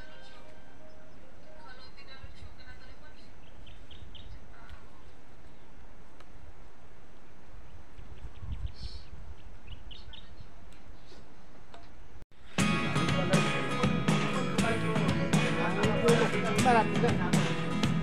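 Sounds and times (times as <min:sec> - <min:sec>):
birds chirping: 0:00.0 - 0:05.8, 0:07.6 - 0:12.1
guitar music: 0:12.4 - 0:18.0.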